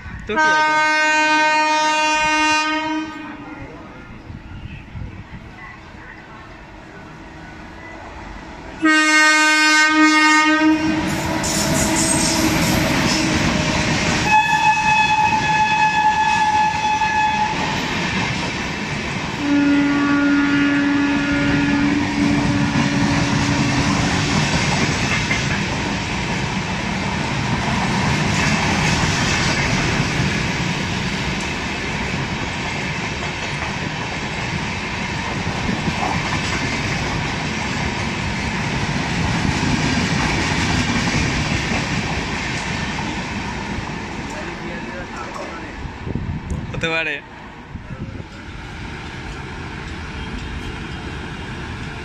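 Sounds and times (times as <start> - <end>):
train horn blasts: 0.4 - 3.5, 8.8 - 13.5, 14.2 - 17.6, 19.4 - 24.2
train wheels rattling on rails: 10.7 - 47.2, 48.0 - 52.0.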